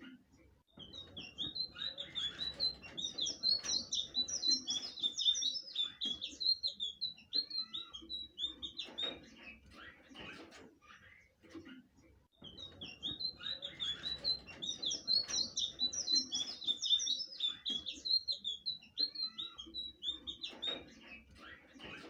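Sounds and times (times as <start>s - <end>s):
bird calls: 0.7s - 11.6s, 12.4s - 22.0s.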